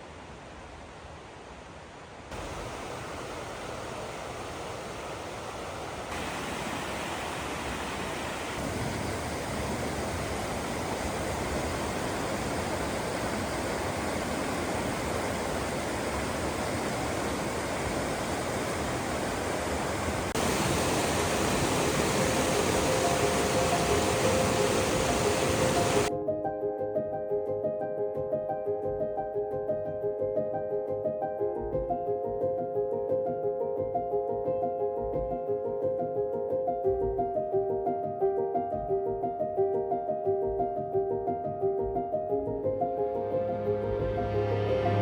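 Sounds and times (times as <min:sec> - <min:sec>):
rushing water: 0:00.0 - 0:26.1, 0:43.2 - 0:45.0.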